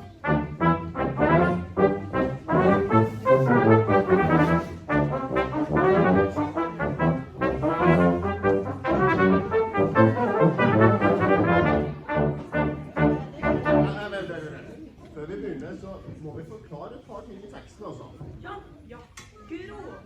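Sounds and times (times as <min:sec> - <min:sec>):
brass quartet playing: 0:00.0 - 0:14.1.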